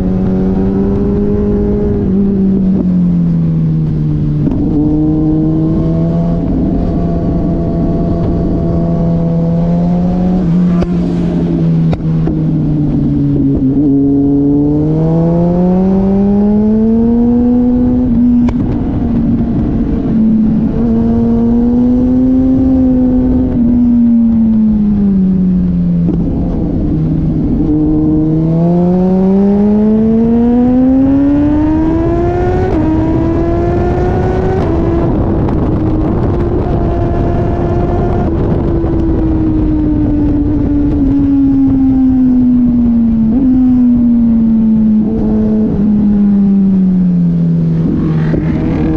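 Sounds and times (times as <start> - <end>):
motorcycle engine revving: 0.0 - 48.9
wind noise: 0.0 - 48.9.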